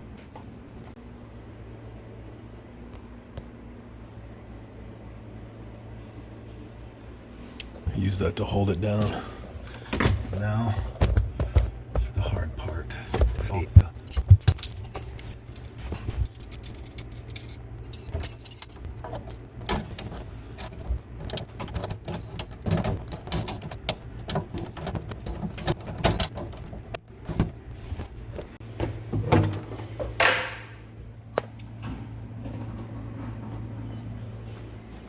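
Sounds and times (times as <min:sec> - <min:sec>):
low steady hum: 0:00.0 - 0:35.0
metallic clinks and rattles: 0:14.0 - 0:26.8.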